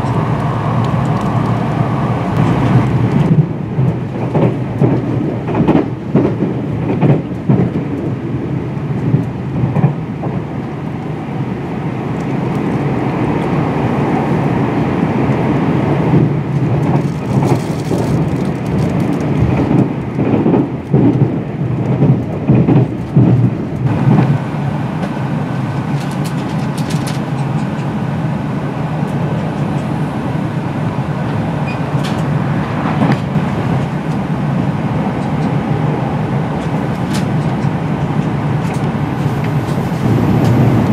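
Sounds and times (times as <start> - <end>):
wheels rumbling on rail: 0.0 - 40.9
clacks over rail joints: 2.3 - 8.2, 16.1 - 24.4, 25.0 - 28.0, 31.3 - 34.3, 36.5 - 40.9.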